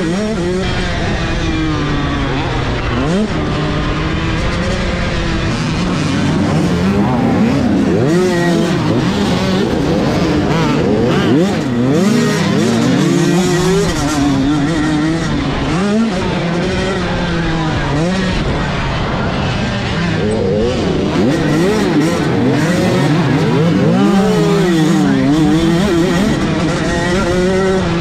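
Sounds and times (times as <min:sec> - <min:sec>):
motocross bikes revving: 0:00.0 - 0:28.0.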